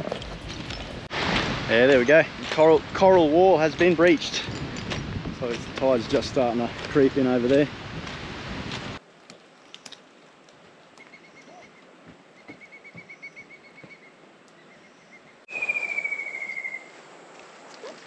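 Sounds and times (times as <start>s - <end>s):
soft outdoor hiss: 1.0s - 18.0s
bird calling in rapid trills: 14.7s - 17.0s.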